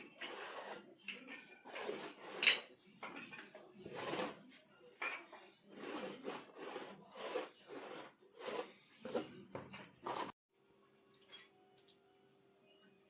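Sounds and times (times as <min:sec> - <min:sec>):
rough rubbing strokes: 0:00.0 - 0:00.9, 0:01.7 - 0:02.4, 0:03.8 - 0:04.6, 0:05.7 - 0:09.3, 0:10.0 - 0:10.4.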